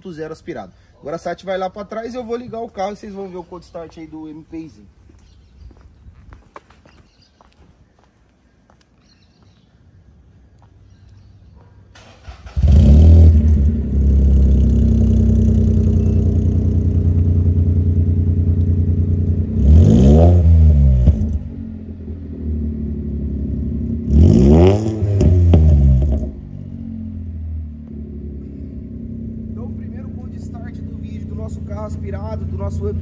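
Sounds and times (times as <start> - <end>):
car engine starting and idling: 11.9 - 33.0
engine revving: 12.0 - 33.0.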